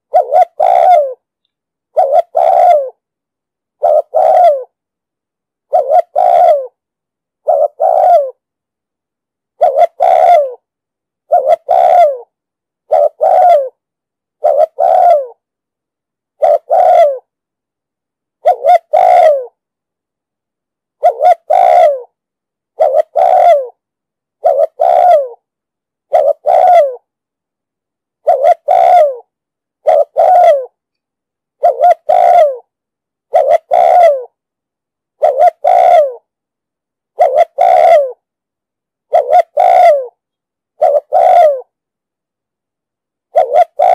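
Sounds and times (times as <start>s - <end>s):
dove cooing: 0.0s - 1.2s, 1.9s - 3.0s, 3.8s - 4.8s, 5.7s - 6.8s, 7.4s - 8.4s, 9.6s - 10.6s, 11.3s - 12.3s, 12.9s - 13.8s, 14.4s - 15.4s, 16.4s - 17.3s, 18.4s - 19.6s, 21.0s - 22.1s, 22.8s - 23.8s, 24.4s - 25.4s, 26.1s - 27.1s, 28.2s - 30.8s, 31.6s - 32.7s, 33.3s - 34.4s, 35.2s - 36.3s, 37.2s - 38.2s, 39.1s - 40.2s, 40.8s - 41.7s, 43.3s - 43.9s.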